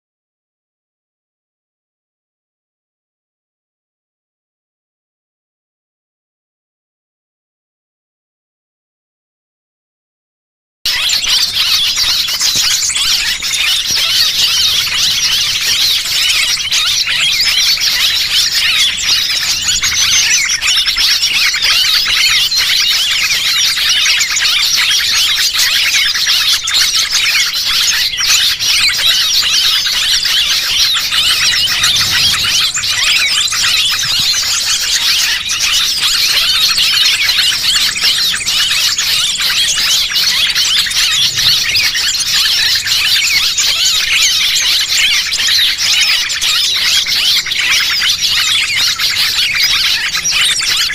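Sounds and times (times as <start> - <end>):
small birds chirping chorus: 10.9 - 50.9.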